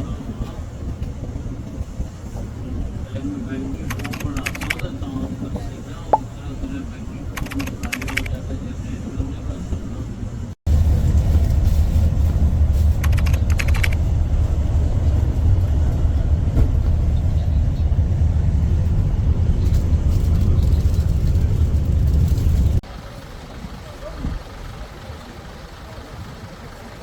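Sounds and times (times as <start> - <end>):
road vehicle engine rumble: 0.0 - 27.0
short bursts of clicking: 3.9 - 4.8, 7.4 - 8.4, 13.0 - 14.0.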